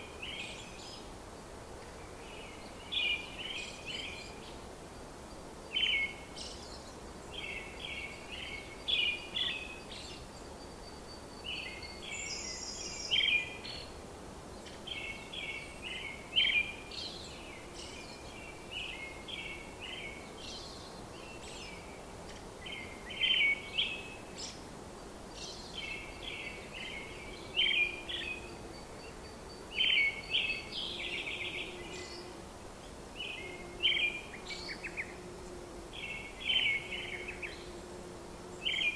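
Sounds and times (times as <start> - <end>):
steady background hiss: 0.0 - 38.9
birds chirping and trilling: 25.3 - 32.4, 33.2 - 35.2, 35.9 - 37.8, 38.6 - 38.9.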